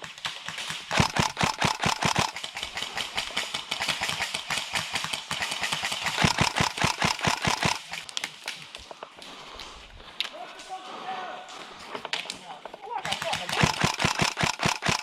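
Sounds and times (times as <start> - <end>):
airsoft guns firing full auto: 0.0 - 8.5, 13.0 - 15.0.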